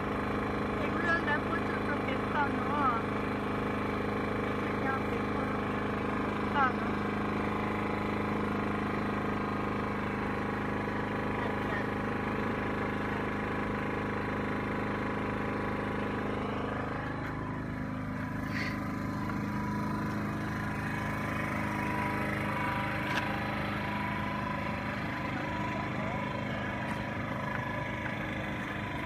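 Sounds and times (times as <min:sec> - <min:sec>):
engine running steadily: 0:00.0 - 0:29.0.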